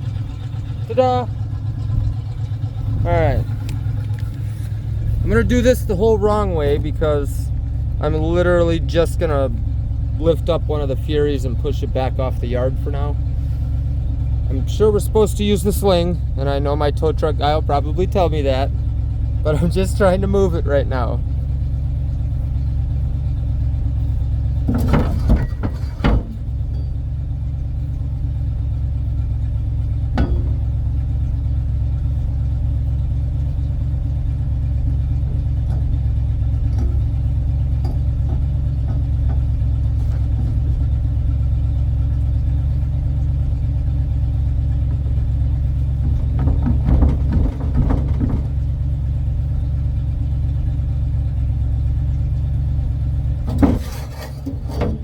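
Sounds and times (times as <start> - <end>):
tow truck engine idling: 0.0 - 55.0
metallic clatter: 23.8 - 28.4, 29.1 - 50.3, 53.1 - 55.0.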